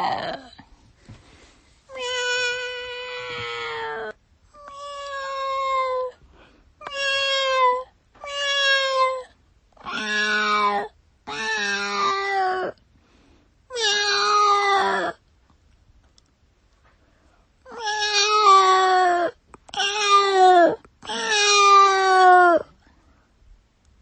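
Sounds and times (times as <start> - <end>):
cat meowing: 1.9 - 6.1, 6.8 - 12.8, 13.7 - 15.2, 17.7 - 22.7.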